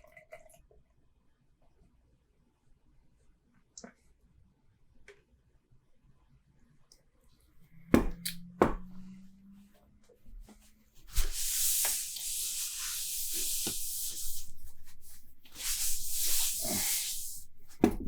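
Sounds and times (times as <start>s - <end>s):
beer pouring and fizzing: 0.0s - 0.8s.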